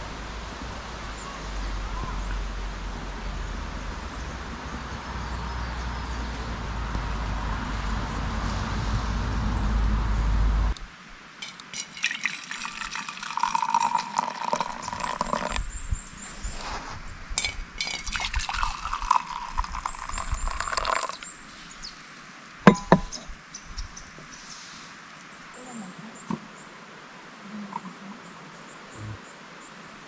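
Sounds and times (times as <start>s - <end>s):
glass clink: 11.4s - 15.6s, 17.4s - 21.3s, 22.7s - 23.2s
liquid pouring into a glass: 11.4s - 15.8s, 17.4s - 21.4s.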